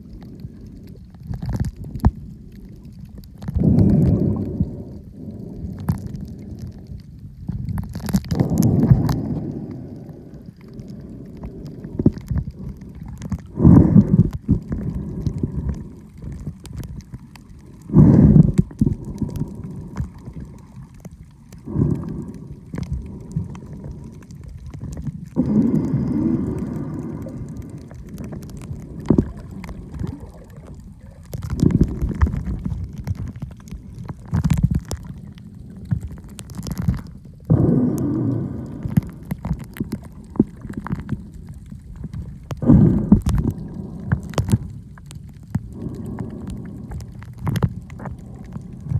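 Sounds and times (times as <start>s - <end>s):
muffled water gurgling and sloshing: 0.0s - 48.9s.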